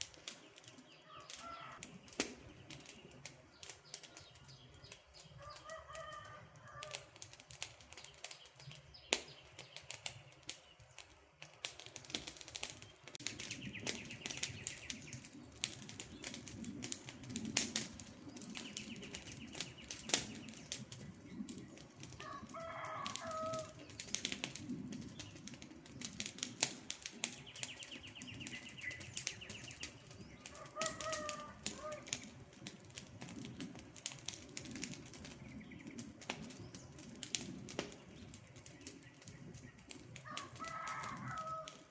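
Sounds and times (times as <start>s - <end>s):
campfire crackling: 0.0s - 41.9s
bird calling: 0.9s - 7.0s, 27.4s - 32.3s.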